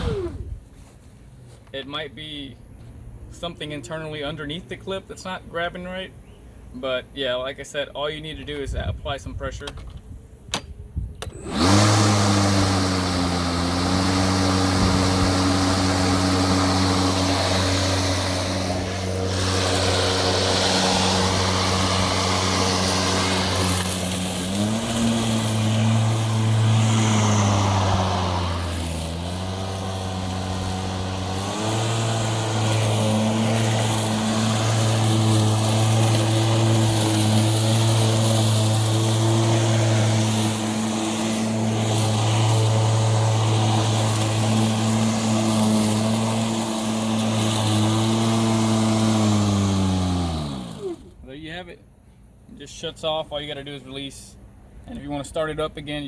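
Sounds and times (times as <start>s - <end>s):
electric lawn mower humming: 0.0s - 0.6s, 11.2s - 51.2s.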